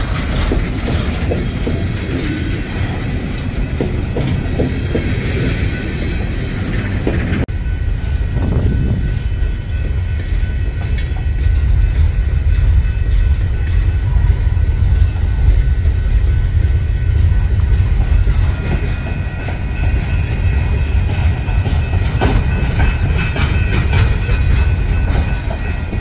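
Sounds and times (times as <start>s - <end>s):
wheels clicking over rail joints: 0.0s - 7.5s, 15.5s - 26.0s.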